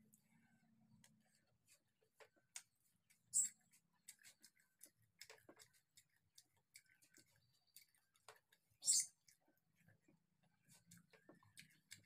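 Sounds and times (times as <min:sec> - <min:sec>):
wet mouth clicks while chewing: 0:03.1 - 0:09.9, 0:10.7 - 0:12.0.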